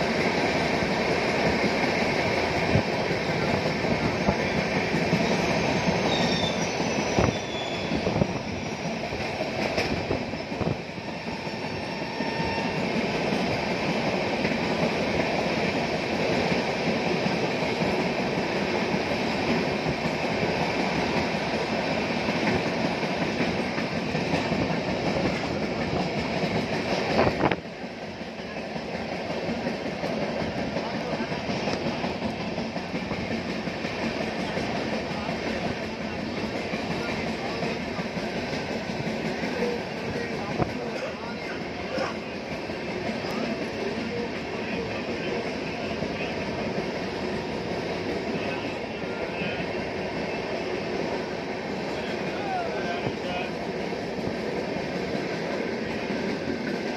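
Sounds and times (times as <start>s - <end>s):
freight train passing: 0.0s - 56.9s
train wheels rumbling on rails: 0.0s - 56.9s
high wheel squeal: 4.0s - 9.0s, 10.2s - 13.0s.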